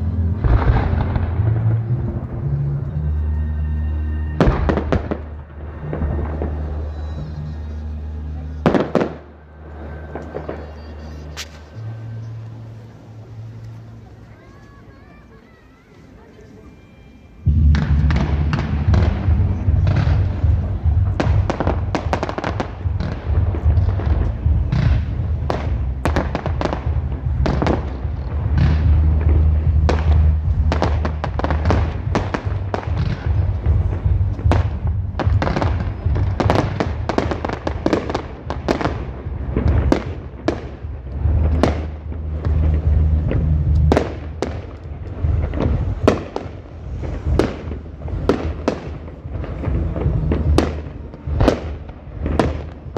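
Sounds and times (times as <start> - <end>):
low rumble: 0.0 - 14.2, 17.5 - 52.9
fireworks bangs and crackles: 0.0 - 16.8, 17.4 - 52.9.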